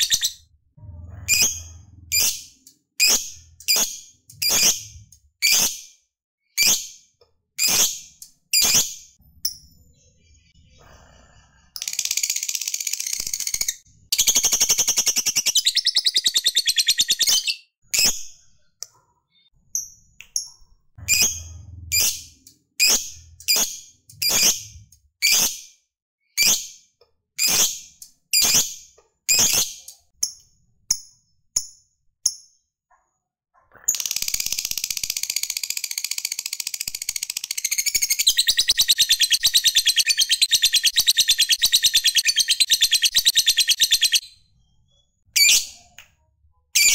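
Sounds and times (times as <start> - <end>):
bird chattering trill: 0.0 - 0.4, 12.2 - 17.6, 33.9 - 44.2.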